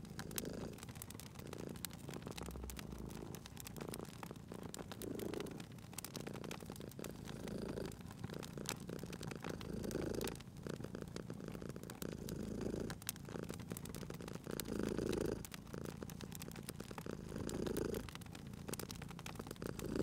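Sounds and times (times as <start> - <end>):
cat purring: 0.0 - 20.0
wood fire crackling: 0.0 - 20.0.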